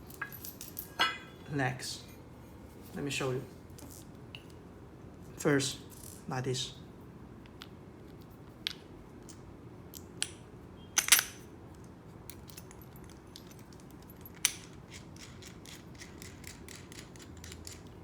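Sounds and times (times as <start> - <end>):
small metal parts clinking: 0.0 - 1.6, 8.6 - 11.5, 12.3 - 18.0.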